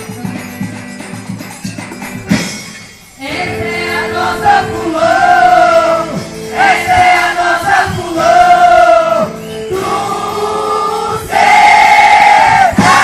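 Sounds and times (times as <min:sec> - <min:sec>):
group of voices singing: 0:03.2 - 0:13.0.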